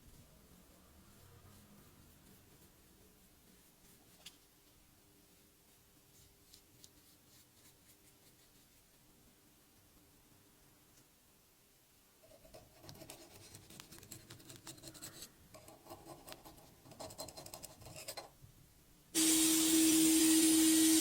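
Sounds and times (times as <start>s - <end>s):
light scratching on a surface: 0.8s - 4.8s.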